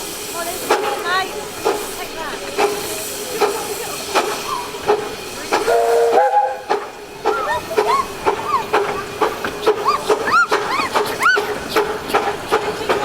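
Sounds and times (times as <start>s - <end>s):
train wheels clicking over rail joints: 0.0s - 13.0s
steam whistle blast: 5.7s - 6.7s.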